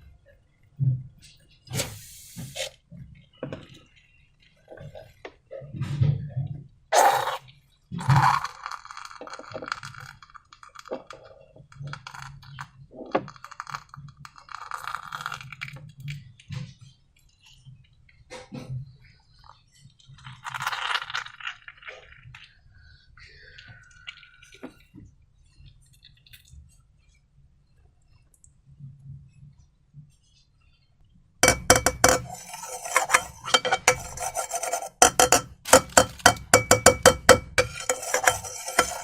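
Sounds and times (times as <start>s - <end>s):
crackly rubbing and squishing: 7.0s - 18.5s, 19.4s - 22.6s, 31.4s - 39.0s
taps and clinks of small objects: 31.4s - 39.0s.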